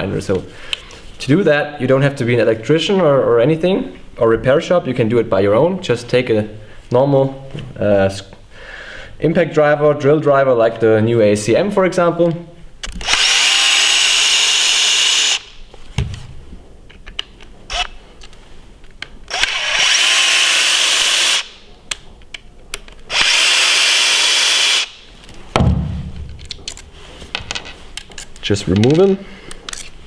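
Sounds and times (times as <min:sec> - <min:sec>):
cordless drill whirring: 0:13.0 - 0:15.5, 0:17.7 - 0:17.9, 0:19.3 - 0:21.6, 0:23.1 - 0:25.0.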